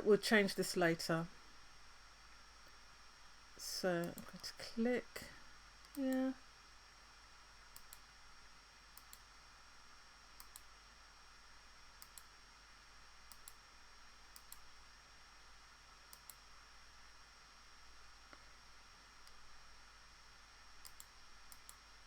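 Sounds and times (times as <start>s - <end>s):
low steady hiss: 0.0s - 22.0s
faint computer mouse clicks: 7.7s - 8.0s, 9.0s - 9.3s, 10.4s - 10.7s, 12.0s - 12.3s, 13.3s - 13.6s, 14.3s - 14.7s, 16.1s - 16.4s, 20.8s - 21.8s.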